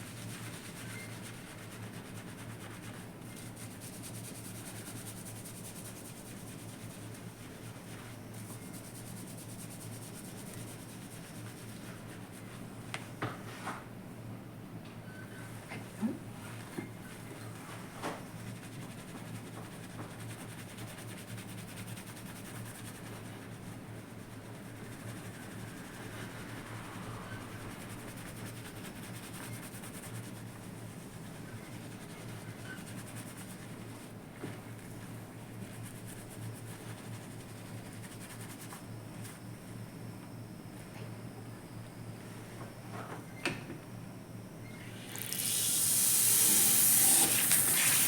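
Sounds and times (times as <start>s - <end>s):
hair lathering with shampoo: 45.0s - 48.0s.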